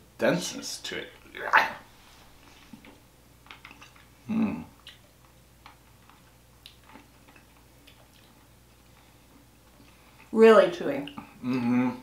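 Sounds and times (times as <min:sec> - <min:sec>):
chewing fruit gums: 0:02.7 - 0:10.3.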